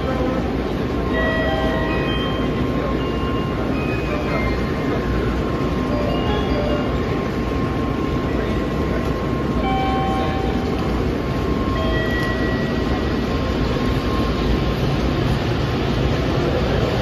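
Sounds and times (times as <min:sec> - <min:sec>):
faint steady whine: 0:00.0 - 0:17.0
train cars rumbling past: 0:00.0 - 0:17.0.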